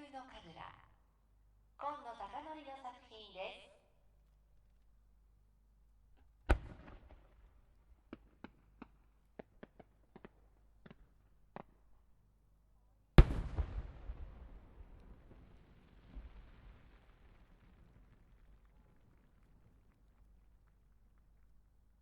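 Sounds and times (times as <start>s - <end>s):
firework launch report: 6.4s - 11.8s, 13.2s - 22.0s.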